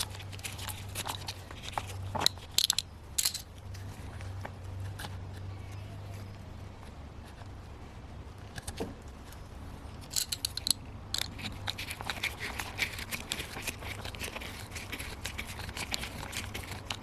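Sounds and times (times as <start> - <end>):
hand tools clicking and rattling: 0.0 - 3.5, 10.0 - 17.0
low steady hum: 0.0 - 17.0.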